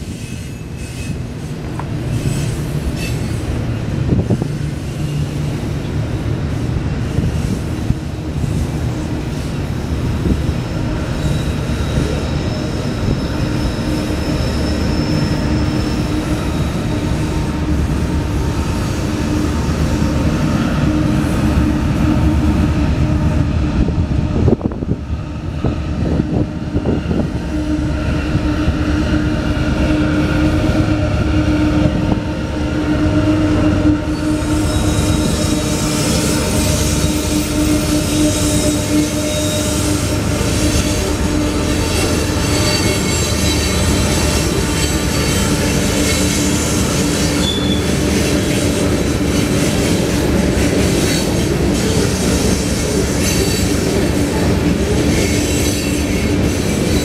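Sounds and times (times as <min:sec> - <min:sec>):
diesel locomotive drone: 0:00.0 - 0:57.0
steel wheels rumbling on rails: 0:00.0 - 0:57.0
high wheel squeal: 0:10.7 - 0:17.9, 0:32.6 - 0:54.1.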